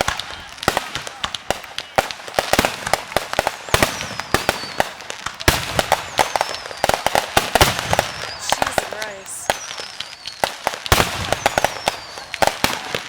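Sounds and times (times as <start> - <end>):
fireworks bangs and crackling pops: 0.0 - 13.0
firework whistles sliding down: 5.8 - 13.0.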